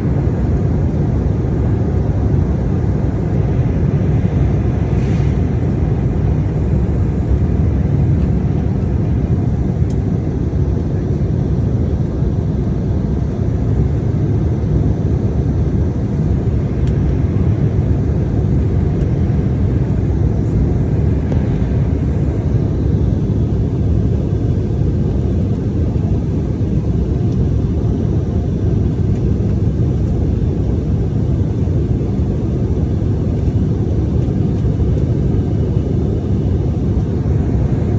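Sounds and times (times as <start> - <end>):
airliner cabin engine rumble: 0.0 - 37.9.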